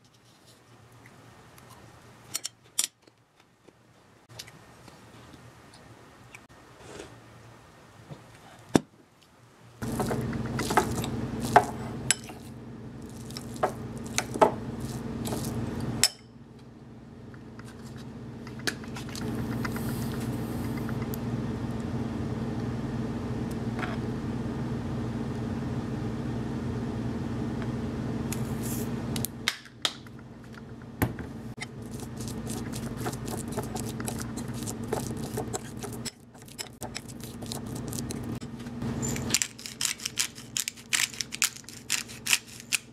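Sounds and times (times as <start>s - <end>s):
low hum: 9.8s - 29.5s, 30.1s - 42.9s.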